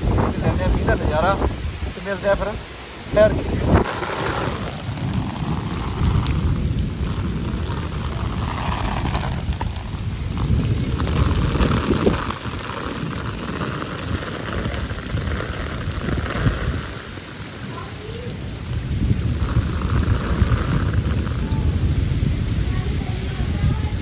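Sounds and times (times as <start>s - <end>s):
low rumble: 0.0s - 17.1s, 18.3s - 24.0s
heavy rain pouring: 0.0s - 24.0s.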